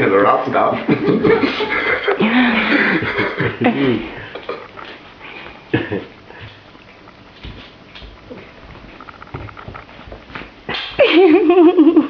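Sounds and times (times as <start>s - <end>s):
people talking: 0.0s - 4.6s
people chuckling: 0.7s - 5.0s, 5.6s - 6.6s, 10.7s - 12.0s.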